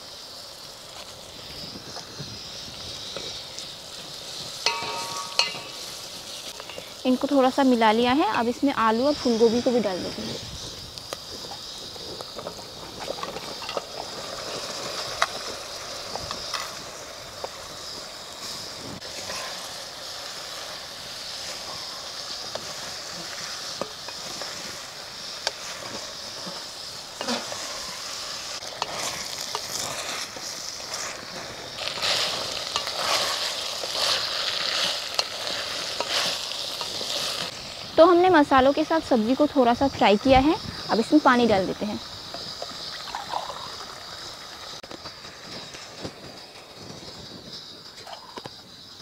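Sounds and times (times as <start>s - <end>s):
vegetables sizzling in oil: 0.0s - 49.0s
wooden spatula scraping pot: 25.5s - 28.1s.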